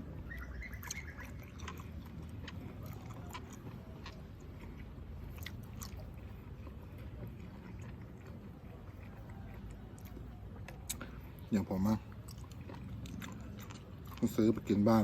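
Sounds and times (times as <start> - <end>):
person chewing food: 0.0 - 15.0
mouth clicks: 9.6 - 11.2.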